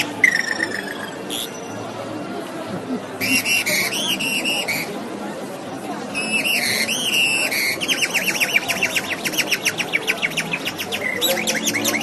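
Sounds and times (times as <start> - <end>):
whistled birdsong imitation: 6.2 - 12.0.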